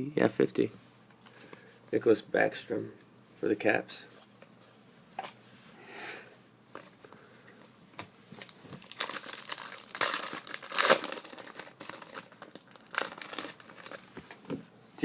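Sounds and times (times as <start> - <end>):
plastic wrapper crinkling and tearing: 8.4 - 14.4.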